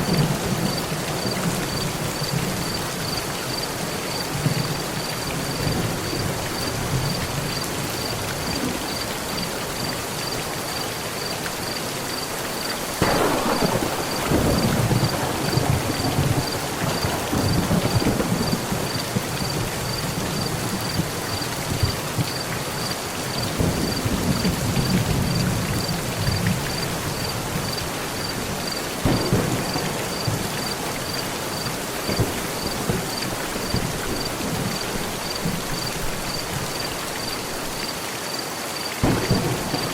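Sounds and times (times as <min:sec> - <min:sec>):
heavy rain on a metal roof: 0:00.0 - 0:39.9
thunder: 0:13.0 - 0:22.4, 0:23.4 - 0:27.8, 0:29.0 - 0:36.6, 0:39.0 - 0:39.9.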